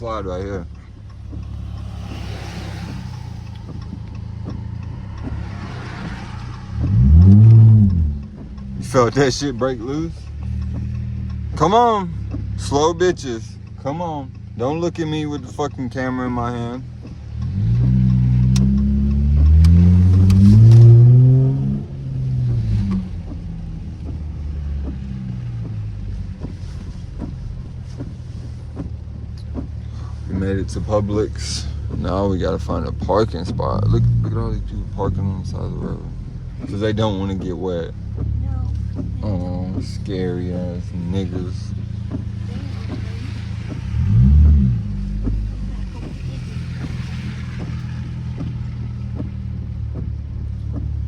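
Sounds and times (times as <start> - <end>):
car exhaust droning and revving: 0.0 - 51.0
tyres hissing on wet road: 1.1 - 8.2, 26.4 - 34.3, 35.2 - 49.7.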